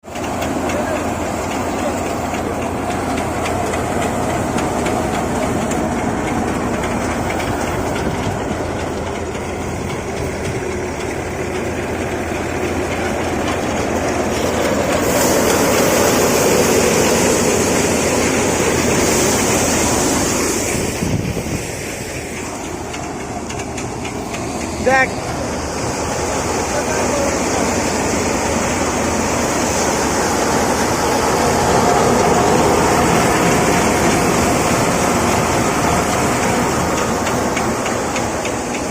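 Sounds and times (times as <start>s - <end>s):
heavy engine clattering: 0.0s - 38.9s
hiss: 14.2s - 22.9s.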